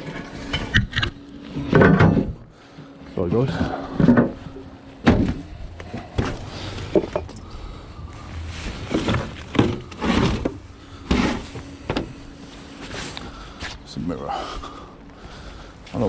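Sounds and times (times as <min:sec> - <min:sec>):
junk thudding in a skip: 0:03.6 - 0:07.4, 0:08.4 - 0:12.3.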